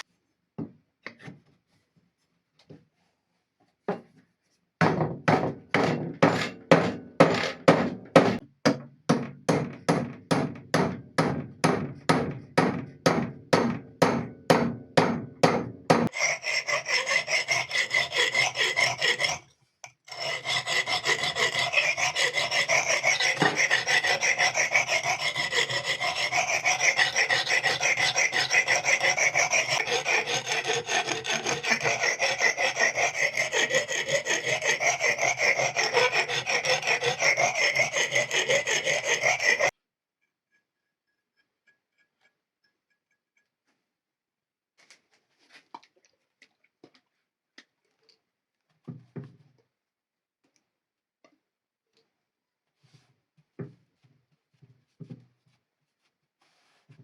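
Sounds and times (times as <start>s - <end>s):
hand file scraping: 5.8s - 8.4s, 15.9s - 39.8s.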